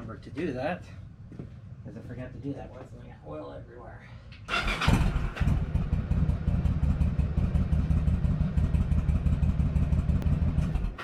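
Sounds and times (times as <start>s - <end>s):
motorcycle engine running: 4.6s - 11.0s.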